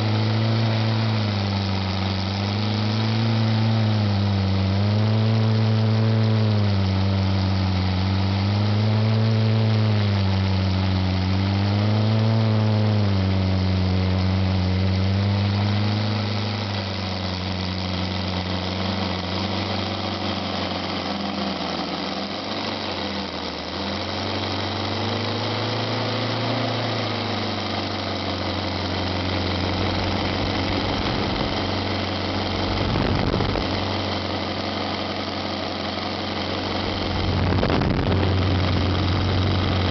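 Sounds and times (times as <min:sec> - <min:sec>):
radial engine running: 0:00.0 - 0:39.9
deep low rumble: 0:29.6 - 0:34.0, 0:36.7 - 0:39.9.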